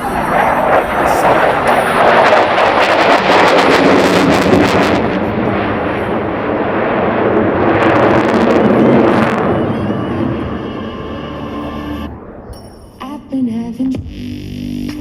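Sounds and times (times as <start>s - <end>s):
jet engines roaring past: 0.0s - 13.5s.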